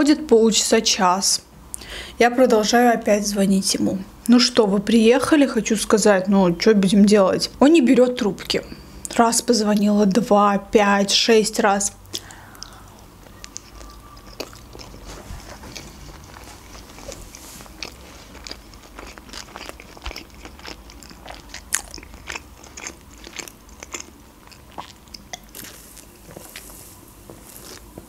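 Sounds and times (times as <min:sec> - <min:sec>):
wet chewing with mouth clicks: 0:12.1 - 0:28.0.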